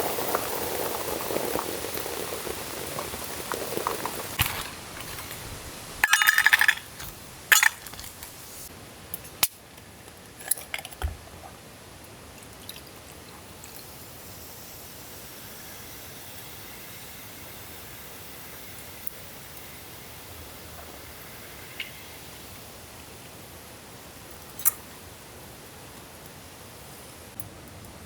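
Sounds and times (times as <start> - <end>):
rain hissing: 0.0 - 9.0
gear knocking and clattering: 4.4 - 8.4.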